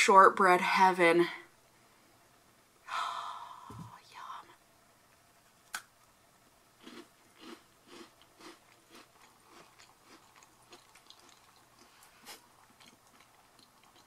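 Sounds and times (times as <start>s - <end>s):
crunchy cookie chewing: 6.8s - 14.0s.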